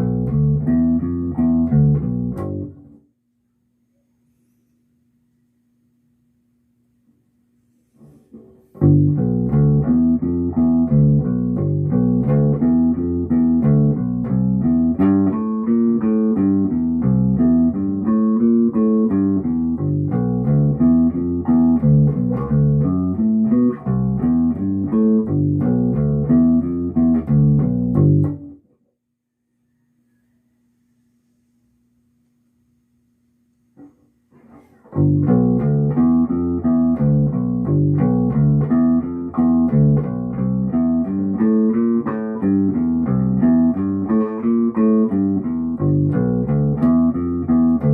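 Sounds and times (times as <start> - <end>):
plucked bass guitar notes: 0.0 - 3.0, 8.8 - 28.6, 34.9 - 47.9
faint amplifier hum: 0.0 - 47.9.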